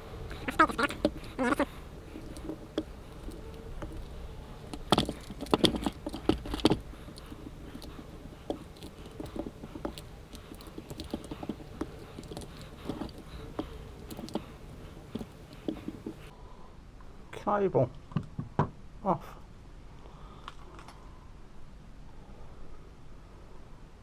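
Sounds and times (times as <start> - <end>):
cutters clicking and snapping: 0.0 - 16.3.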